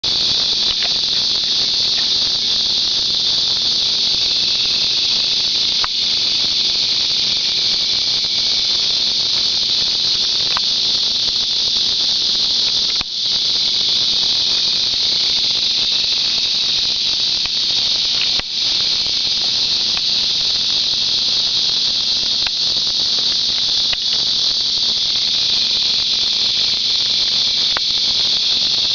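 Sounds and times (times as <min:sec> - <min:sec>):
high-pitched insect chorus: 0:00.0 - 0:28.9.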